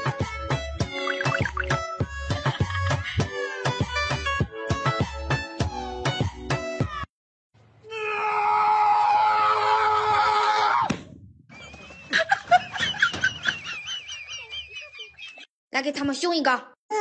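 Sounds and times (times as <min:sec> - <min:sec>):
loud scream: 0:07.8 - 0:10.9.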